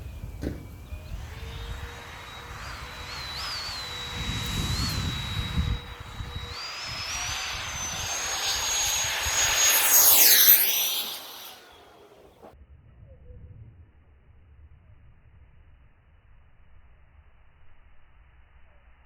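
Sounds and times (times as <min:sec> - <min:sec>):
electric ducted fan whining: 0:00.0 - 0:12.2.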